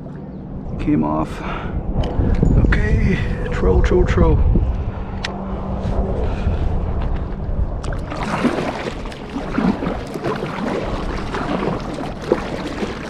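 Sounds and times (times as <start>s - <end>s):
low rumble: 0.0s - 12.8s
paddle splashing in water: 7.8s - 13.0s.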